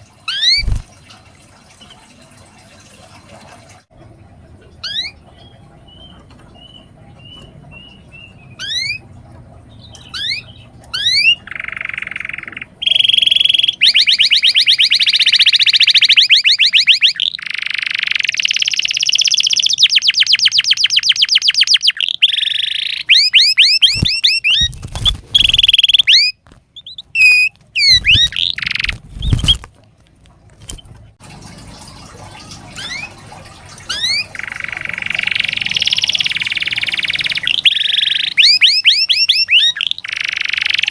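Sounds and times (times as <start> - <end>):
canary singing: 0.2 - 0.8, 4.8 - 9.1, 9.7 - 29.6, 32.7 - 33.2, 33.8 - 40.9.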